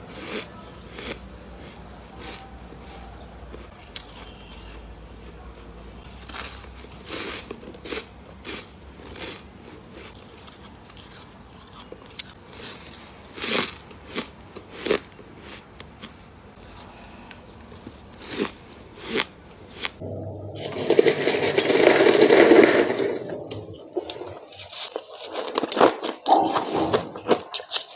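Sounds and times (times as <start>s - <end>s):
frost crunching in mouth: 24.0s - 27.9s.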